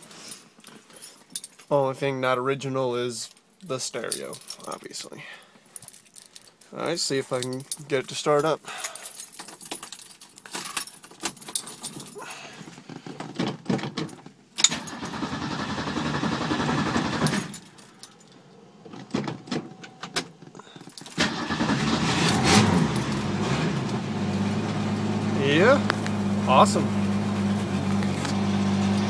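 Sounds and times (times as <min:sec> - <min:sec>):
keys jangling in ignition: 0:00.6 - 0:01.7, 0:03.3 - 0:05.0, 0:05.8 - 0:12.3, 0:17.2 - 0:18.6, 0:20.7 - 0:23.3
car engine cranking and starting: 0:14.6 - 0:29.0.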